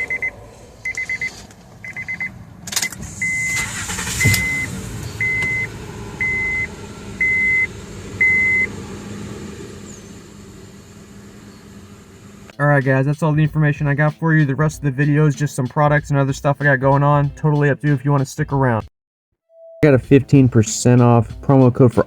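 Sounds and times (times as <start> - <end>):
car warning chime beeps: 0.0 - 8.7
car engine starting and idling: 0.0 - 18.7.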